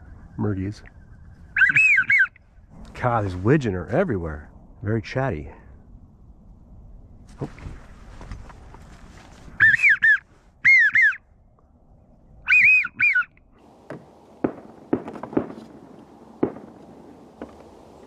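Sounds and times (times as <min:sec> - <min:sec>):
wigeon whistles: 0:01.5 - 0:02.4, 0:09.6 - 0:11.2, 0:12.4 - 0:13.3.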